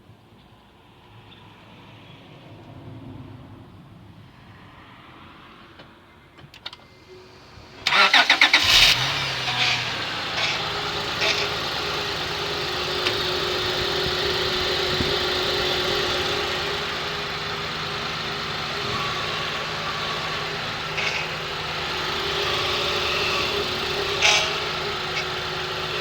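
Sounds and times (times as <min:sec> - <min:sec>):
car engine idling with whine: 0:06.8 - 0:26.0
starter motor cranking: 0:07.7 - 0:26.0.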